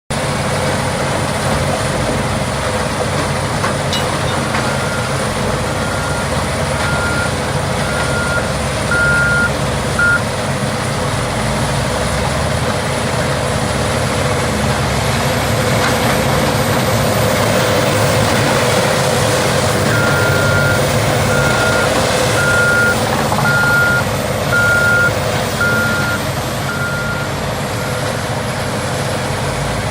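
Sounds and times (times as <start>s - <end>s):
reversing alarm beeping: 3.9s - 10.3s, 19.8s - 28.0s.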